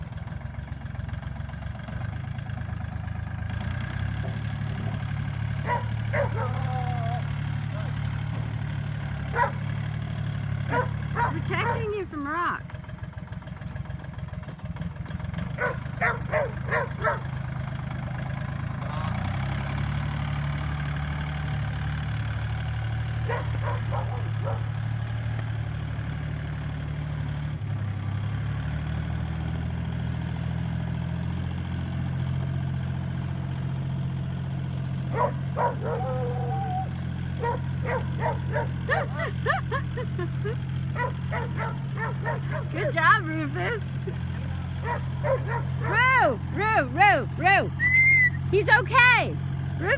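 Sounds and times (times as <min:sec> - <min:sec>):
tractor engine drone: 0:00.0 - 0:49.9
dog barking: 0:05.6 - 0:08.0, 0:09.3 - 0:09.6, 0:10.7 - 0:11.9, 0:15.6 - 0:17.3, 0:23.2 - 0:24.7, 0:35.1 - 0:39.3, 0:41.0 - 0:42.7, 0:44.8 - 0:46.0
dog whining yelp: 0:05.7 - 0:07.3, 0:35.2 - 0:39.4.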